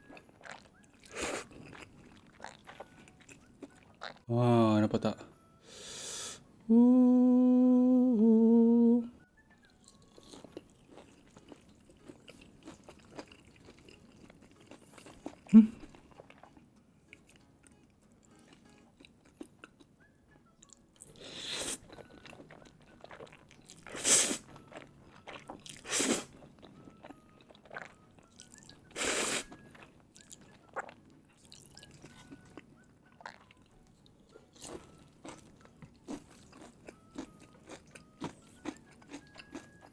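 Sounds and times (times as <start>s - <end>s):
chewing mouth sounds: 0.0s - 4.3s, 9.7s - 19.9s, 20.6s - 39.9s
slurping or crunching: 0.4s - 4.2s, 21.1s - 24.6s, 25.2s - 26.4s, 27.6s - 29.6s
man humming: 6.7s - 9.2s.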